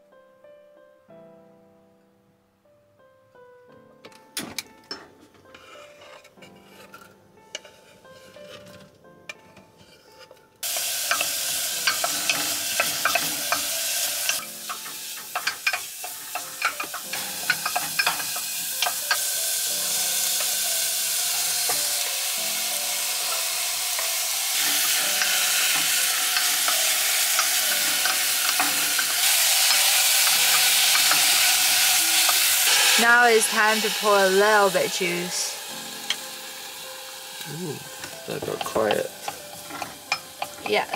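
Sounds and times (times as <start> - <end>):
wooden spatula stirring pot: 5.4 - 19.4, 37.8 - 40.9
vegetables sizzling in hot oil: 10.6 - 40.9.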